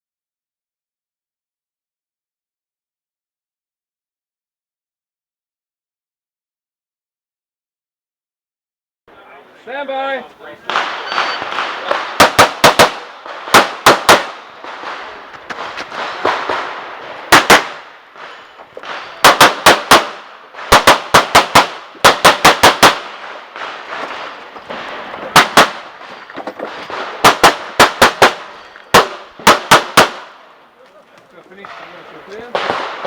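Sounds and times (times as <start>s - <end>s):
pistol shots in rapid strings: 10.7s - 15.0s, 17.3s - 17.8s, 18.8s - 23.9s, 25.3s - 25.8s, 27.2s - 30.3s.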